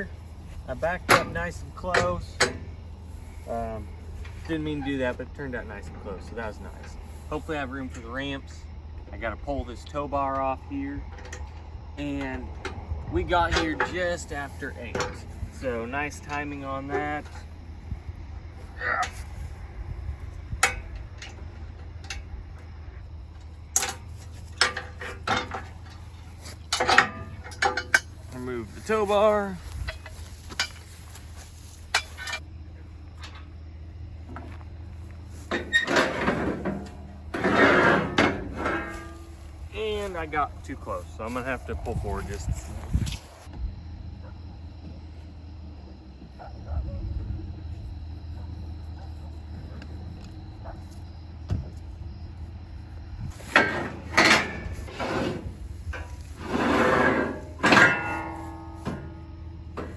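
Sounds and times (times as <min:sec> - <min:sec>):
low engine hum: 0:00.0 - 0:37.5, 0:38.1 - 0:56.4, 0:58.2 - 0:59.9
metal tow bar clanking: 0:00.7 - 0:02.9, 0:10.3 - 0:17.5, 0:20.5 - 0:22.6, 0:23.3 - 0:31.0, 0:31.9 - 0:32.4, 0:35.4 - 0:39.6, 0:53.3 - 0:59.9
drawn-out scrape: 0:35.4 - 0:39.6, 0:53.3 - 0:58.8
sharp clunks: 0:35.5 - 0:39.2, 0:53.4 - 0:59.9.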